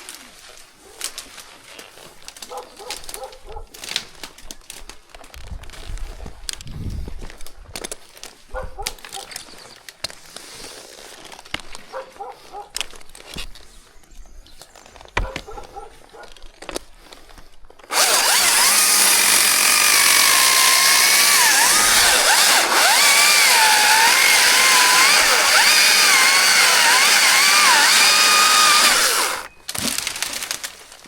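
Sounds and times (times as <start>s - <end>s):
chainsaw cutting wood: 17.9s - 30.3s.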